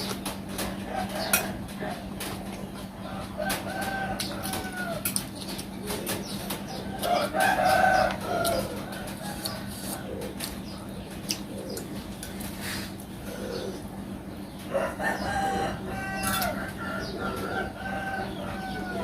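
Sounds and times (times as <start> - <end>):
rooster crowing: 3.1 - 5.2, 6.9 - 10.2, 14.7 - 19.0
eating clicks and cracks: 3.6 - 7.1, 8.0 - 9.6, 10.2 - 12.4.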